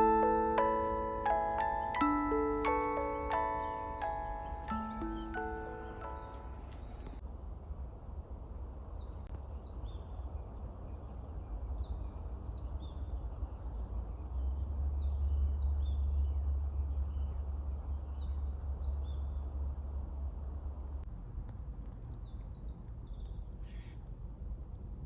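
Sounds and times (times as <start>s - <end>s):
songbird singing: 0.0s - 7.2s, 9.0s - 19.6s.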